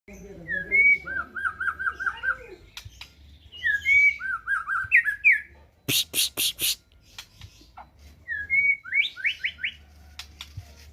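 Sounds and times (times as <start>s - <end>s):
bird singing whistled phrases: 0.4s - 2.9s, 3.5s - 7.3s, 8.2s - 9.8s.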